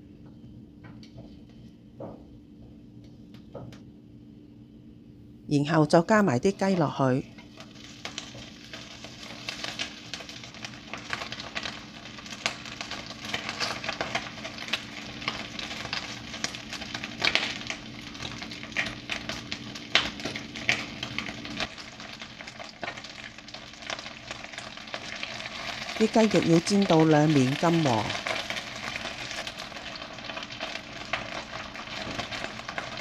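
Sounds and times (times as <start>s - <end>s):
chicken sizzling in hot oil: 7.4s - 33.0s.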